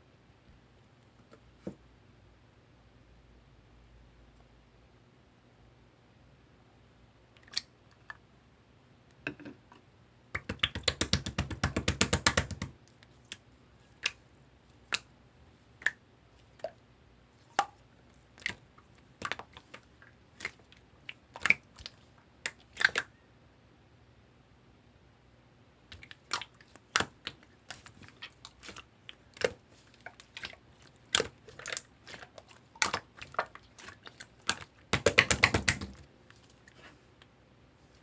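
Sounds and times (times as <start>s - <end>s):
slime squeezed with wet clicks: 19.2s - 23.1s, 25.9s - 36.0s.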